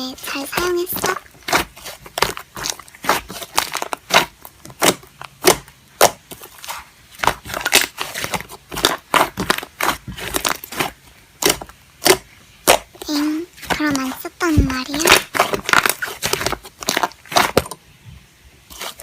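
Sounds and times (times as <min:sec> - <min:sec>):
slime crackling and popping: 0:00.0 - 0:17.8, 0:18.7 - 0:19.0.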